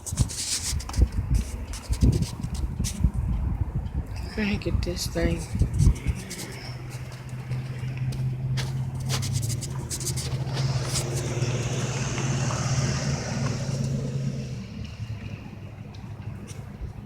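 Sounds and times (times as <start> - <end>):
truck engine humming: 4.9 - 17.0.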